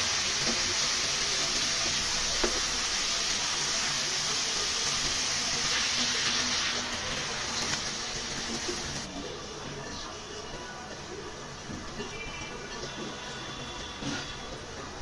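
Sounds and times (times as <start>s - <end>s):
fish sizzling in a pan: 0.0s - 9.1s.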